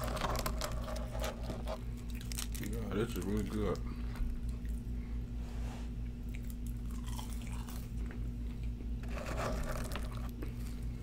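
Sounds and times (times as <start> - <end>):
chewing with wet mouth sounds: 6.2 - 8.9.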